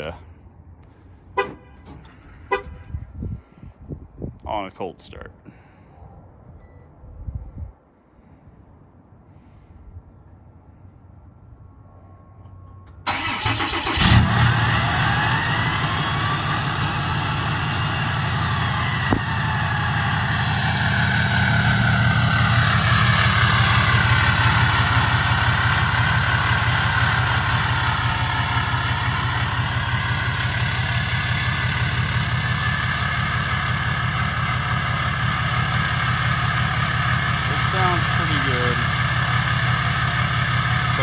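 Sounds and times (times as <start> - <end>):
diesel engine cranking and idling: 0.0 - 3.8, 12.7 - 41.0
engine exhaust burst: 1.4 - 3.0, 13.1 - 41.0.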